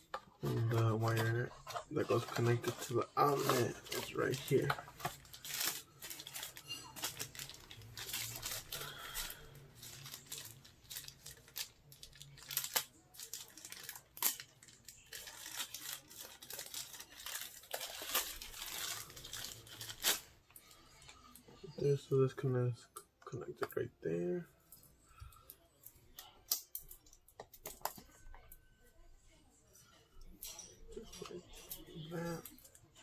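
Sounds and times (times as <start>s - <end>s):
packaging rustling and crinkling: 0.0s - 21.4s.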